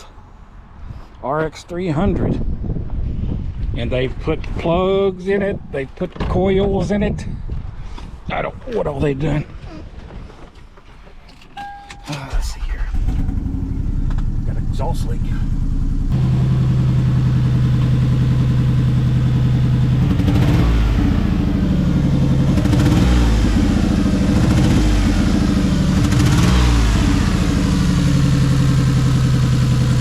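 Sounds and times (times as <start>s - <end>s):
car engine idling and revving: 11.3s - 30.0s.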